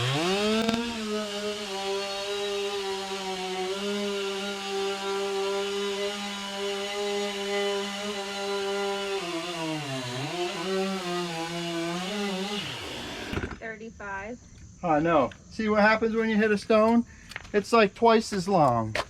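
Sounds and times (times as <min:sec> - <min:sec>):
chainsaw cutting log: 0:00.0 - 0:13.6.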